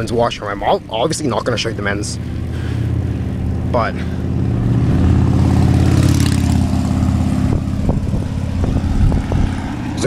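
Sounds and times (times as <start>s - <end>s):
car passing close by: 2.2s - 10.0s.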